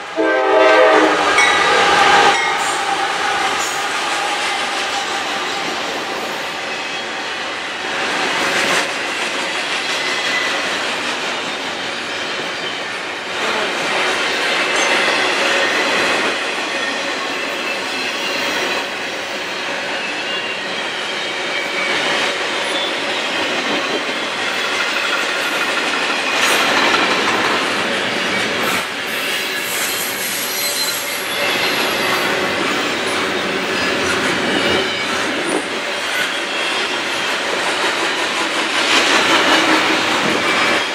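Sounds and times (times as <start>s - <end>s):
train wheels squealing: 1.4s - 40.9s
freight train cars clattering: 20.8s - 40.9s.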